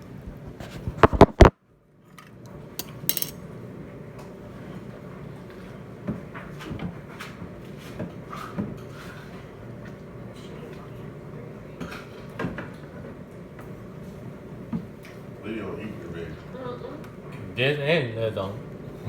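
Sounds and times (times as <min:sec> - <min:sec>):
dishes and cutlery clattering: 0:02.8 - 0:03.4.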